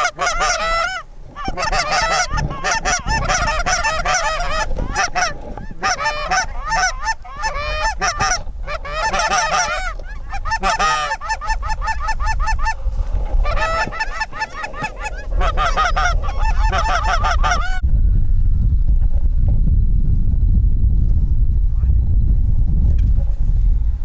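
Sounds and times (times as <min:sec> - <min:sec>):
geese honking and clucking: 0:00.0 - 0:17.8
low wind rumble: 0:00.0 - 0:24.0.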